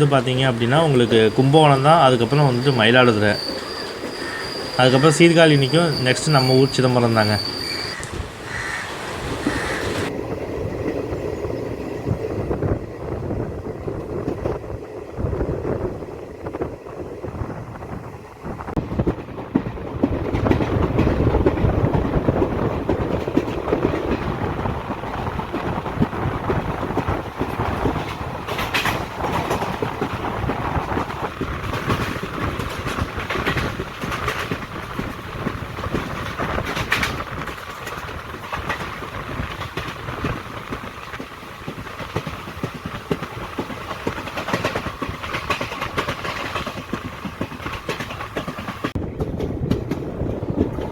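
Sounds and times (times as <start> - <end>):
wheels clacking over rail joints: 0.0 - 12.8, 18.7 - 50.9
train rumbling: 0.0 - 50.9.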